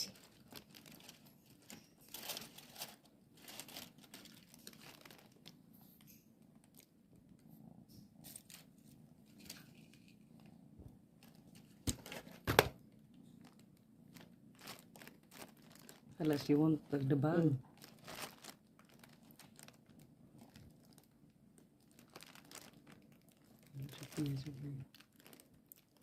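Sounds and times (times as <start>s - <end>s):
plastic bag rustling: 0.0s - 5.6s, 13.4s - 21.2s, 21.8s - 26.0s.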